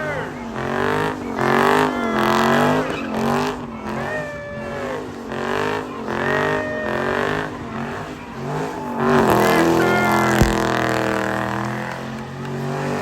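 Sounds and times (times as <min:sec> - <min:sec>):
tires squealing: 0:00.0 - 0:13.0.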